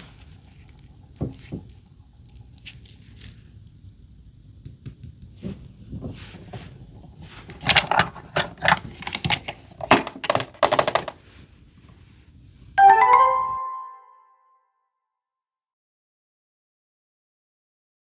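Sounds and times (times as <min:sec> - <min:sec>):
short bright chime: 0:12.8 - 0:14.6.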